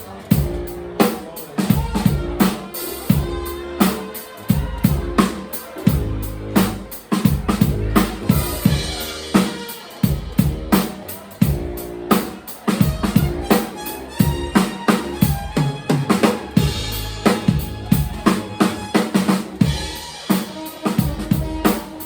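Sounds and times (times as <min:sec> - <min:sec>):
drum kit groove: 0:00.0 - 0:22.0
low bass line: 0:05.9 - 0:09.3, 0:16.4 - 0:18.9.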